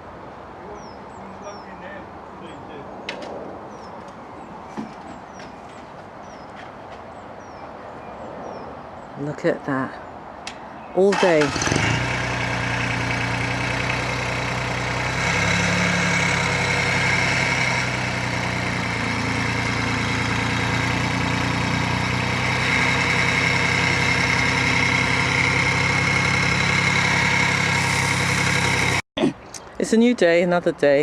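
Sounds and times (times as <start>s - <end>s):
engine running: 11.1s - 29.0s.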